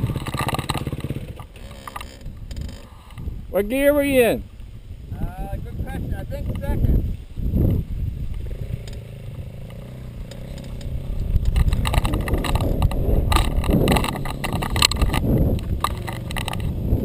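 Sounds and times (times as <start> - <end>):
engine crackling: 0.0 - 3.4, 7.7 - 17.0
dirt bike engine: 0.0 - 4.5, 6.5 - 17.0.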